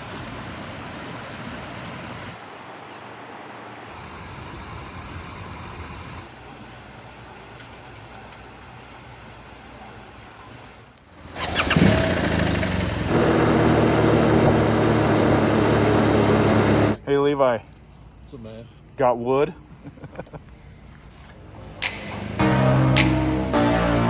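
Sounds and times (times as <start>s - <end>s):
even hiss: 0.0s - 6.3s
motorcycle engine starting and idling: 11.2s - 17.0s.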